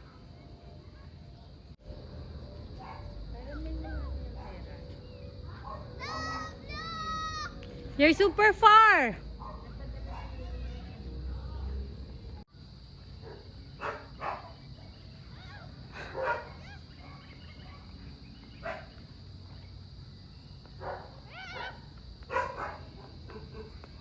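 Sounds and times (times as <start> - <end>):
dog barking: 2.8 - 3.2, 3.9 - 4.7, 5.5 - 6.4, 9.4 - 10.6, 13.2 - 14.6, 16.1 - 17.9, 18.6 - 19.0, 20.8 - 23.9.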